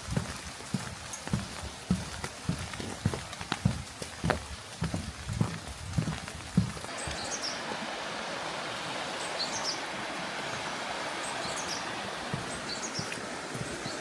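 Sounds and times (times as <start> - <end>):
rain falling: 0.0 - 14.0
bird chirping: 11.2 - 13.2.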